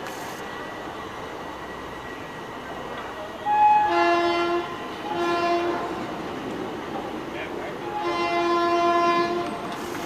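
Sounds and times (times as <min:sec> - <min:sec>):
train coaches rolling past: 0:00.0 - 0:10.0
locomotive air horn: 0:03.4 - 0:05.9, 0:07.9 - 0:09.9.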